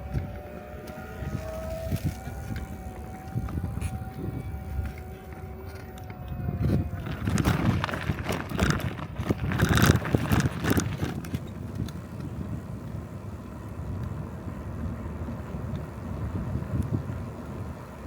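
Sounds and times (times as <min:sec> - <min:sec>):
bicycle tyres rumbling on road: 0:00.0 - 0:18.0
wind buffeting microphone: 0:00.0 - 0:18.0.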